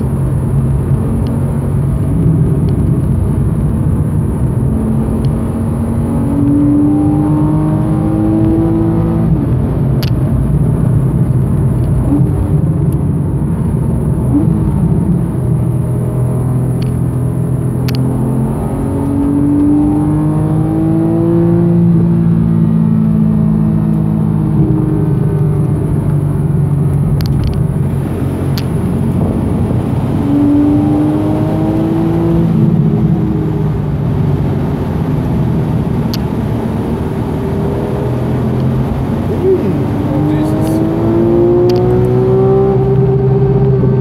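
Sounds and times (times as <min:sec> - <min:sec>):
car engine accelerating: 0:00.0 - 0:44.0.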